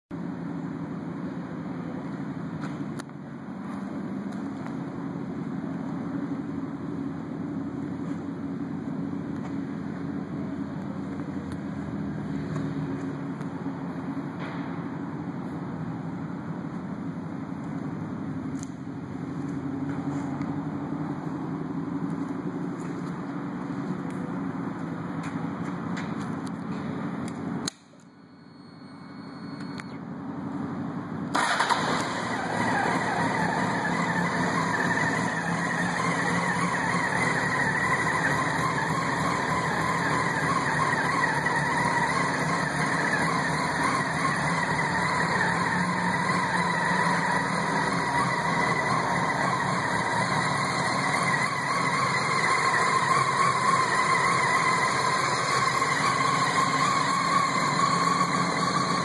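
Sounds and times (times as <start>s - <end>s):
motorcycle engine running: 31.4s - 59.0s.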